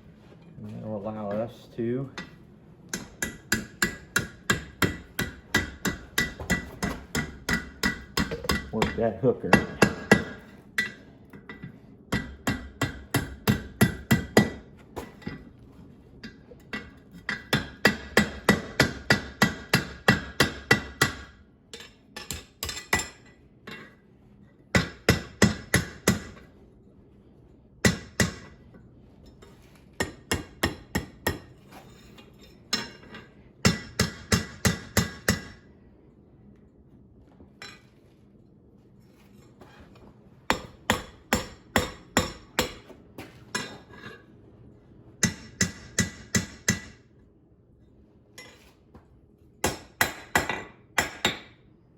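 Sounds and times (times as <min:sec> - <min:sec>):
hammer striking steel on anvil: 0:02.2 - 0:15.4, 0:16.2 - 0:24.0, 0:24.7 - 0:26.5, 0:27.8 - 0:28.6, 0:30.0 - 0:31.6, 0:32.4 - 0:35.6, 0:40.5 - 0:44.1, 0:45.2 - 0:47.1, 0:49.6 - 0:51.6.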